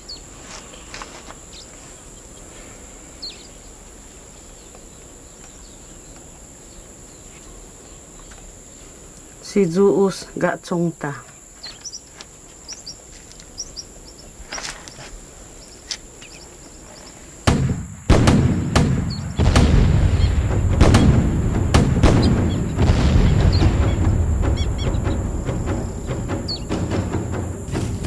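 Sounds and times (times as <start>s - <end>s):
birds chirping: 0.0s - 28.0s
gunfire cracks: 17.4s - 24.2s
explosions rumbling: 17.4s - 28.0s.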